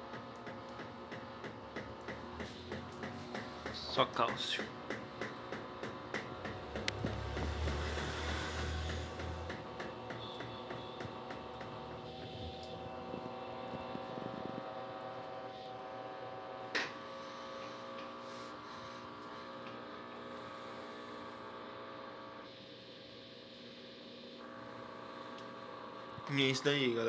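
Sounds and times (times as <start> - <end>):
washing machine spinning: 0.0 - 18.2.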